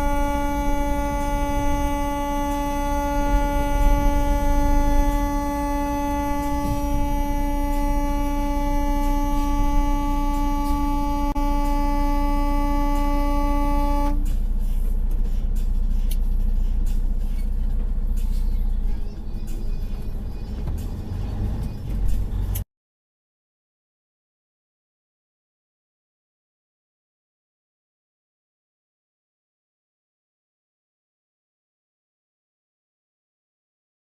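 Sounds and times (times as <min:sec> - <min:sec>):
vehicle horn blast: 0:00.0 - 0:14.4
truck engine and road rumble: 0:00.0 - 0:22.7.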